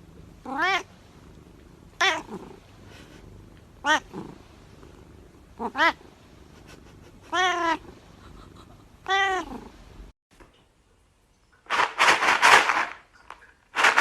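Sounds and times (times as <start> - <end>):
cat meowing: 0.4 - 0.9, 2.0 - 2.4, 3.8 - 4.2, 5.6 - 6.0, 7.2 - 7.9, 9.0 - 9.7.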